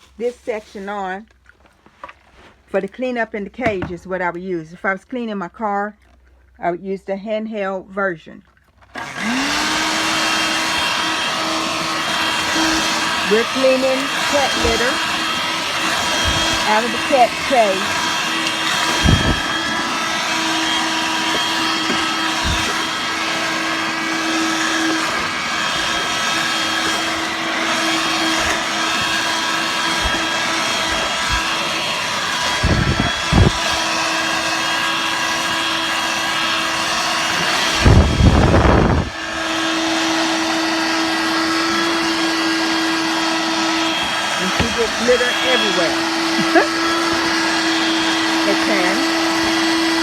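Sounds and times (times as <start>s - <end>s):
stick vacuum motor whine: 8.9s - 50.0s
rushing air: 14.1s - 23.9s, 24.6s - 34.0s, 37.6s - 39.2s.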